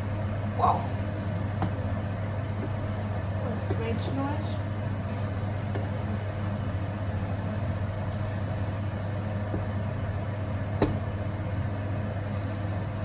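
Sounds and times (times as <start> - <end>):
kitchen appliance humming: 0.0 - 13.0.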